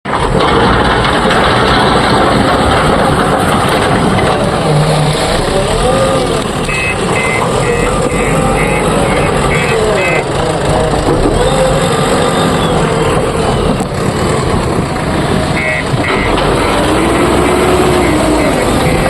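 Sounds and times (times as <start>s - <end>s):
heavy diesel machinery working: 0.0s - 19.0s
reversing alarm beeping: 6.7s - 10.3s, 15.6s - 19.0s.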